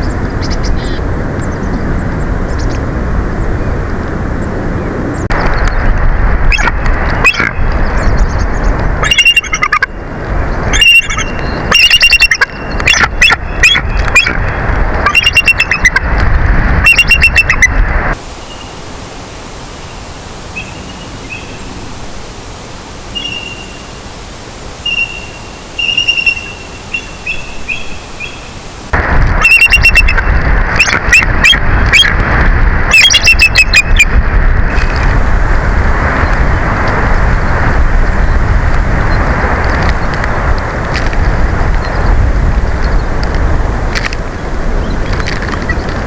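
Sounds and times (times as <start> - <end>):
wind buffeting microphone: 0.0 - 46.0
eagles chattering calls: 9.0 - 10.0, 10.7 - 16.1, 16.8 - 17.8, 24.8 - 28.6.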